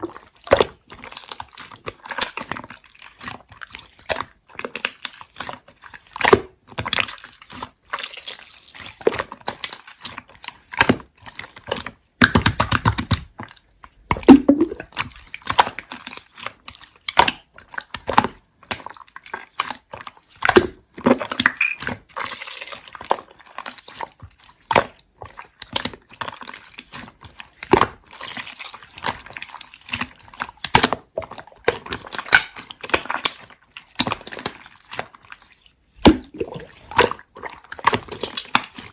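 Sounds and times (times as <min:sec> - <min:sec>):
slime squished by hand: 0:00.0 - 0:38.9
wet clicks and pops: 0:11.8 - 0:13.3, 0:14.1 - 0:15.7, 0:36.0 - 0:38.8.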